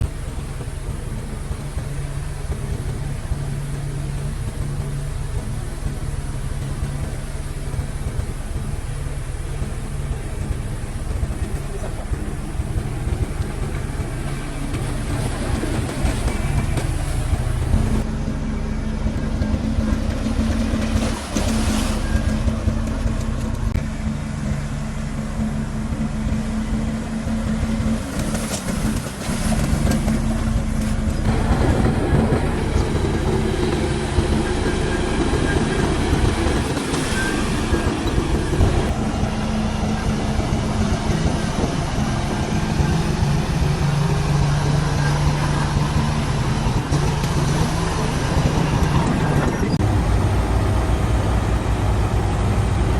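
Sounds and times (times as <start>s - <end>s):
diesel machinery engine drone: 0.0s - 52.9s.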